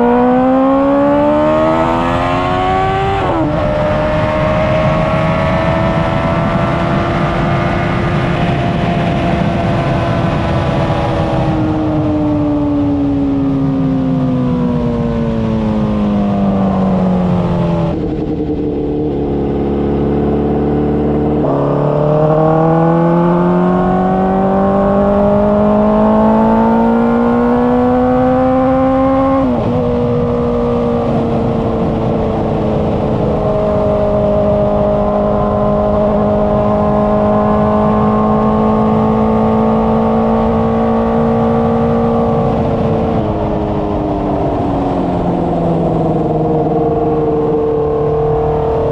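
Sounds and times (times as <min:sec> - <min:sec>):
motorcycle engine and exhaust: 0:00.0 - 0:48.9
wind noise: 0:00.0 - 0:48.9.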